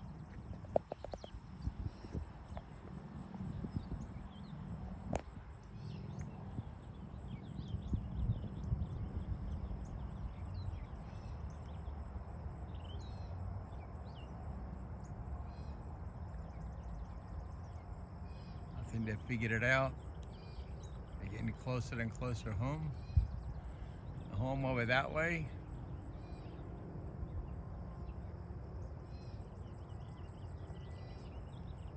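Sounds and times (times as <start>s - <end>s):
constant low rumble: 0.0s - 31.9s
bird chirps: 15.4s - 26.6s.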